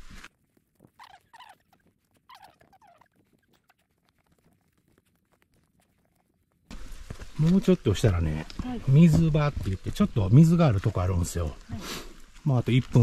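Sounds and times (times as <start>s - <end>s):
faint bird calls: 1.0s - 3.8s.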